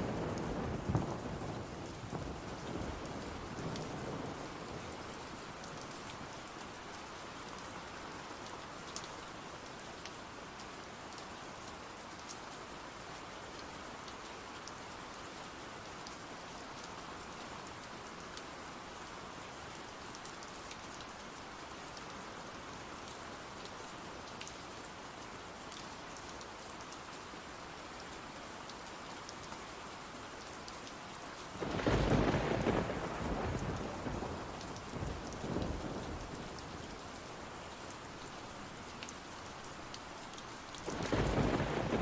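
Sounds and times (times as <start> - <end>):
steady rain: 0.0 - 42.0
thunderclap: 40.9 - 42.0.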